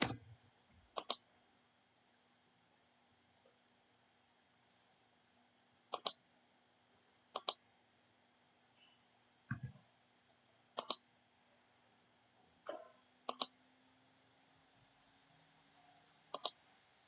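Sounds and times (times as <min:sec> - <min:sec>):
computer mouse clicks: 0:00.0 - 0:00.2, 0:00.9 - 0:01.3, 0:05.9 - 0:06.2, 0:07.4 - 0:07.6, 0:09.5 - 0:09.8, 0:10.8 - 0:11.0, 0:12.7 - 0:13.6, 0:16.3 - 0:16.6.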